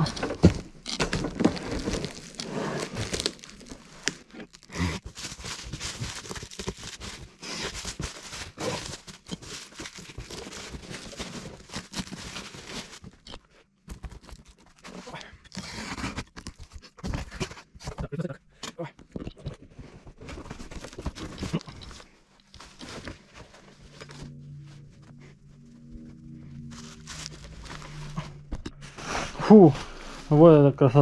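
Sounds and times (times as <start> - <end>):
packaging tearing and rustling: 0.0 - 13.3, 20.2 - 24.6, 26.6 - 30.4.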